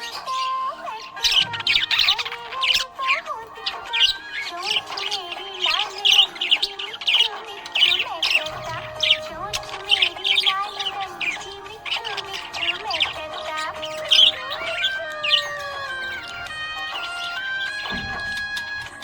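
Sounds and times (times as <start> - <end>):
budgerigars chirping: 0.0 - 19.0.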